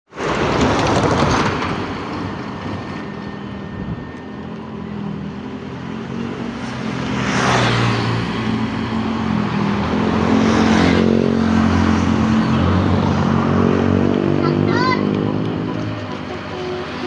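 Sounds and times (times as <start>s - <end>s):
road noise: 0.1s - 17.0s
vehicle engine running: 14.3s - 17.0s.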